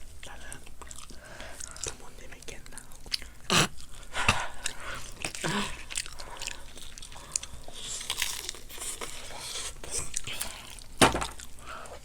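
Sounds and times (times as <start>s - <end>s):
crunching fried chicken: 3.1s - 11.7s.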